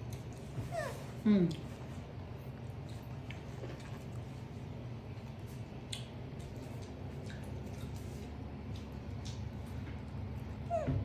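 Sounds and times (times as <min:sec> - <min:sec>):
wet clicks of chewing corn: 0:00.0 - 0:00.5, 0:02.5 - 0:10.6
steady low hum: 0:00.0 - 0:11.0.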